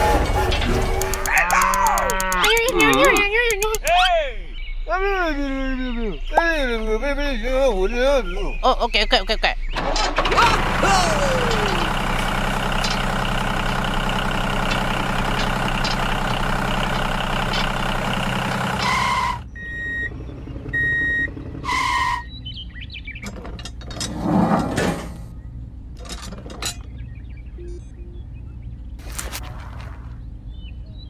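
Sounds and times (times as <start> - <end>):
toy tractor engine sound: 0.0 - 4.0, 9.8 - 22.3.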